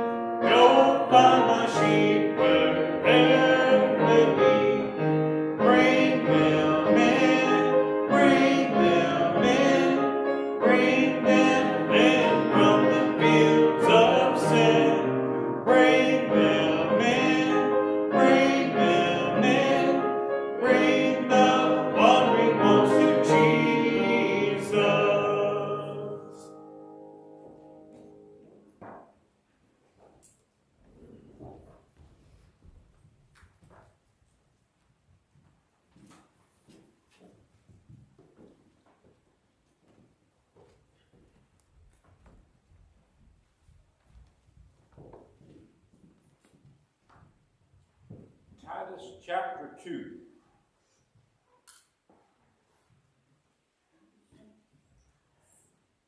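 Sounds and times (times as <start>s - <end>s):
hymn singing: 0.0s - 28.4s
piano accompaniment: 0.0s - 29.1s.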